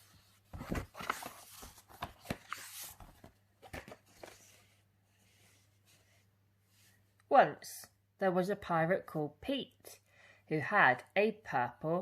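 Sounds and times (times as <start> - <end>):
book pages rustling and turning: 0.0 - 7.0.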